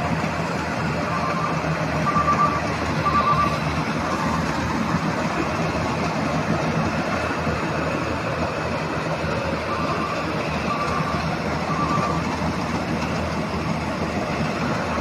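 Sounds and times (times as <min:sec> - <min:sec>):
combine harvester running: 0:00.0 - 0:15.0
machine alarm beeping: 0:01.2 - 0:03.6, 0:09.7 - 0:12.2.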